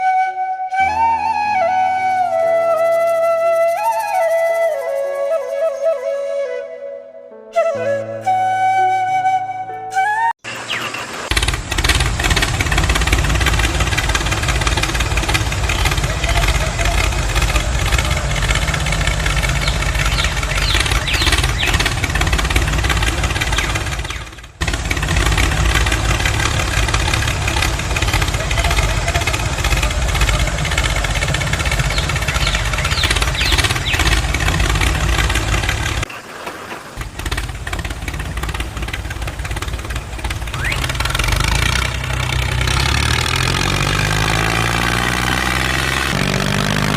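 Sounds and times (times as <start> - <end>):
engine rumbling: 0.0 - 5.1, 10.4 - 46.9.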